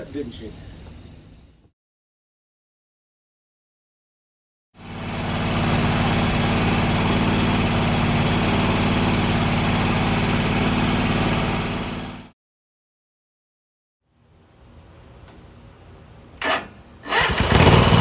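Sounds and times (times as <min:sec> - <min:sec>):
mower engine running: 0:04.8 - 0:12.3, 0:16.4 - 0:18.0.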